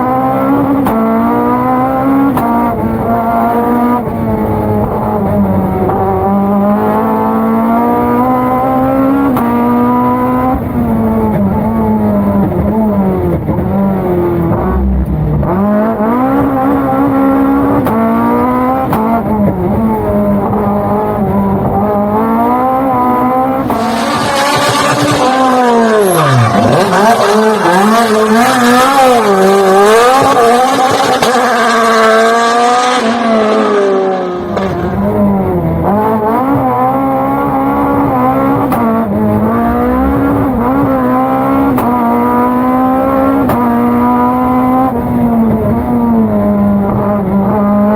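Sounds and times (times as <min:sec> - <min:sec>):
rally car engine revving: 0:00.0 - 0:47.9.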